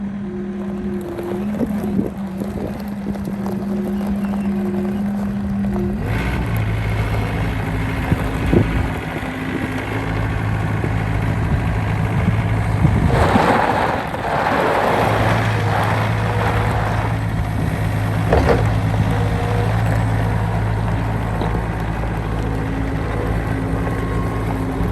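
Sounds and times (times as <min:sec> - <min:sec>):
engine running steadily: 0:00.0 - 0:24.9
rush of noise: 0:12.8 - 0:18.7.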